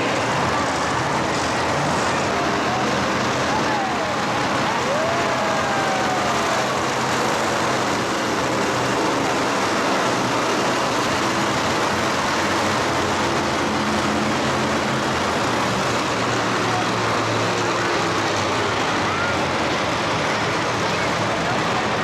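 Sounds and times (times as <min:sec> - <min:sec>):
loud engine noise: 0:00.0 - 0:22.0.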